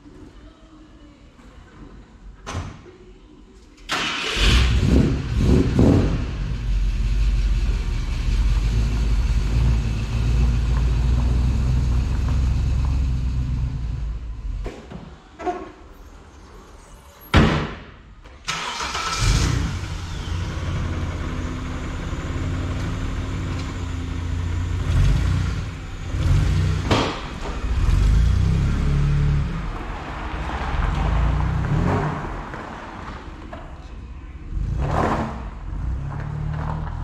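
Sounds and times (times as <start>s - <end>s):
car engine starting and revving: 3.9s - 14.6s, 18.5s - 33.4s, 34.4s - 37.0s.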